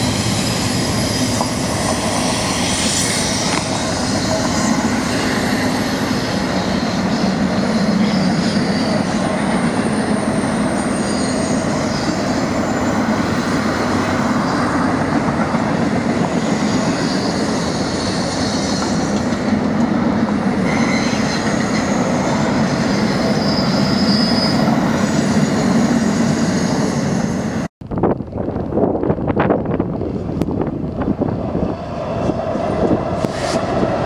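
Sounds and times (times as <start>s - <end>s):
high wheel squeal: 0.0s - 14.8s, 16.3s - 19.5s, 20.4s - 27.6s
train wheels rumbling on rail: 0.0s - 34.0s.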